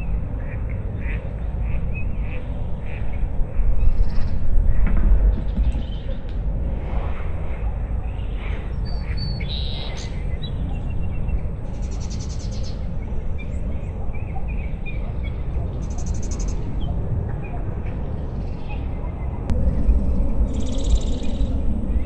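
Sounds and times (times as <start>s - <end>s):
wind rumble: 2.2s - 22.0s.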